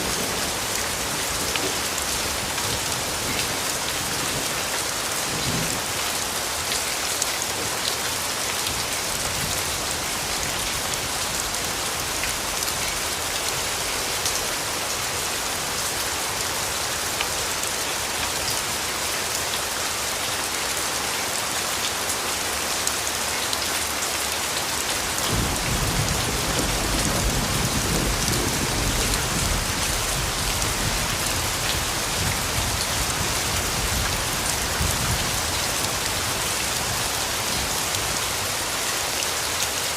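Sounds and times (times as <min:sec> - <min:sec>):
steady rain falling: 0:00.0 - 0:39.9
low rumble of thunder: 0:25.3 - 0:35.5.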